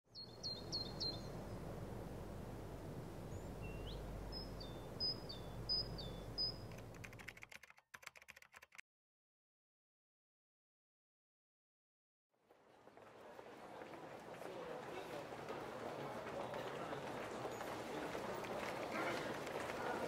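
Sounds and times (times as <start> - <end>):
birds calling: 0.1 - 1.6, 3.2 - 7.0
low background noise: 0.2 - 7.3, 12.4 - 20.0.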